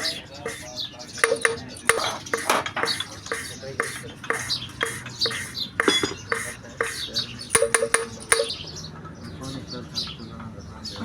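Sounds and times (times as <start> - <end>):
valve scraping on seat: 0.0 - 8.6
metallic clinks: 1.2 - 3.0, 4.8 - 6.6, 7.5 - 8.6.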